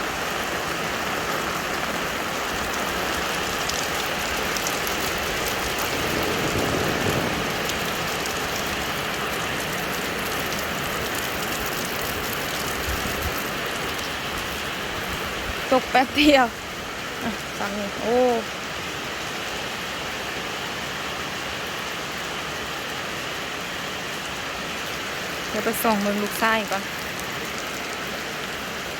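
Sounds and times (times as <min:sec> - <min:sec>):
rain pouring: 0:00.0 - 0:28.9
raindrop ticks: 0:02.4 - 0:14.5.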